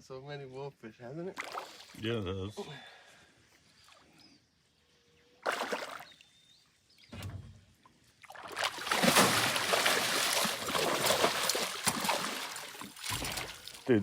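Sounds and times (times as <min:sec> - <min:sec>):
fish splashing in water: 0:05.4 - 0:06.1, 0:08.2 - 0:13.8.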